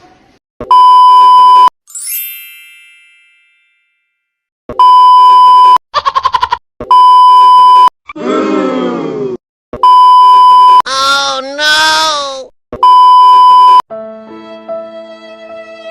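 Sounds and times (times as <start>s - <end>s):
censor bleeps: 0.7s - 1.7s, 4.8s - 5.8s, 6.9s - 7.9s, 9.8s - 10.8s, 12.8s - 13.8s
falling chime: 1.9s - 4.3s.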